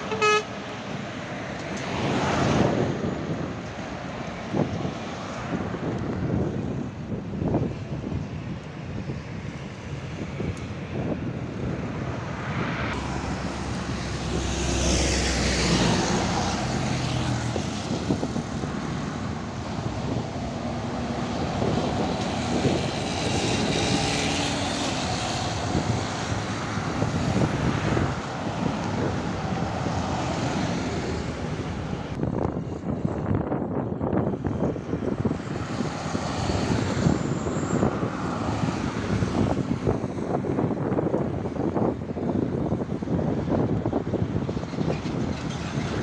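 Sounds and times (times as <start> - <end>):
diesel trucks driving past: 12.3 - 33.4.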